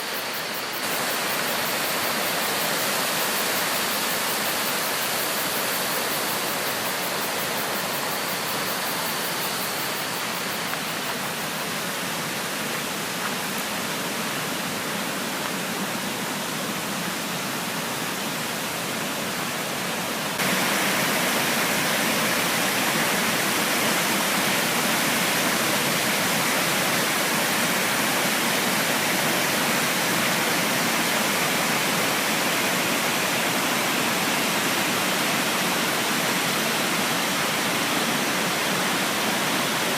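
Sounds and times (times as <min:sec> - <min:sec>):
creek water rushing: 0:00.0 - 0:39.9.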